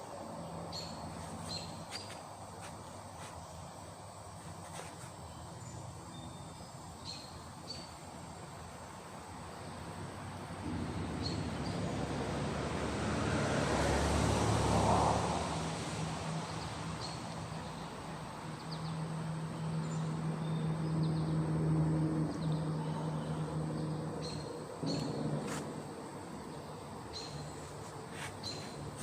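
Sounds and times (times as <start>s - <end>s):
vehicle engine passing: 9.8s - 29.0s
bird chirps: 22.4s - 25.3s.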